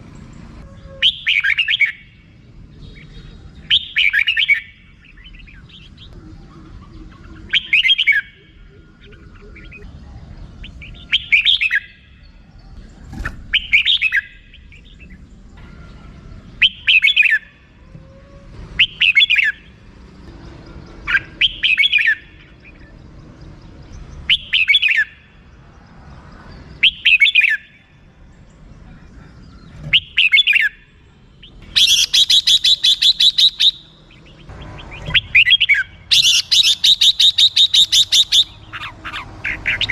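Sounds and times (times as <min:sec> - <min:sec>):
bird chirping phrases: 0:00.0 - 0:39.9
bird chattering call: 0:03.0 - 0:09.9, 0:16.6 - 0:17.5, 0:21.0 - 0:22.8, 0:29.6 - 0:39.9.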